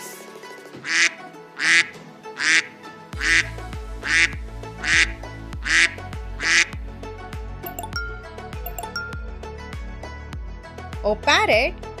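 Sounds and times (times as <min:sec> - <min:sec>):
duck quacking: 0:00.8 - 0:06.7
background music with bass: 0:03.1 - 0:12.0.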